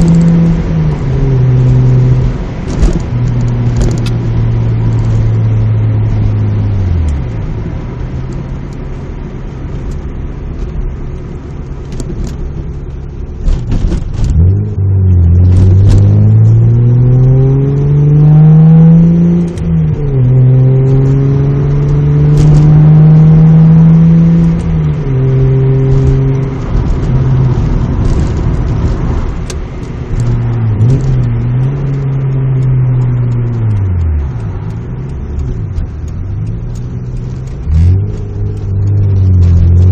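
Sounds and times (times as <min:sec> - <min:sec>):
car engine and exhaust while driving: 0:00.0 - 0:39.9.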